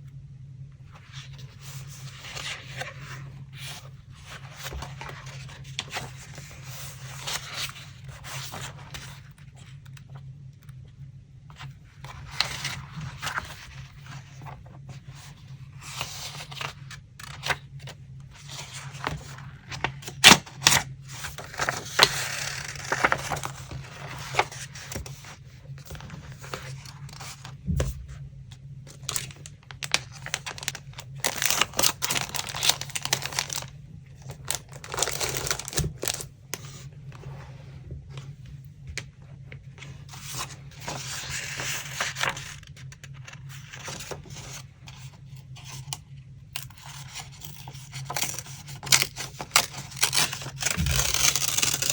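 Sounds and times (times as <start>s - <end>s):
steady low hum: 0.0s - 46.7s
paper rustling and tearing: 12.0s - 27.6s, 28.9s - 36.8s, 46.6s - 51.9s.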